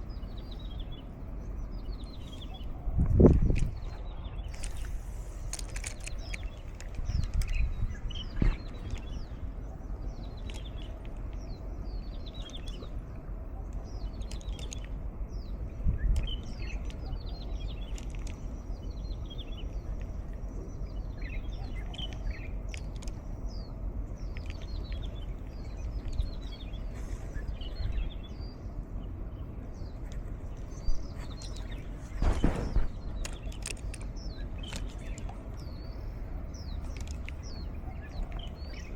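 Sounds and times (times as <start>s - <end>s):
wild birds chirping: 0.0s - 38.9s
wind on microphone: 0.0s - 38.9s
dull thumps: 32.1s - 33.4s.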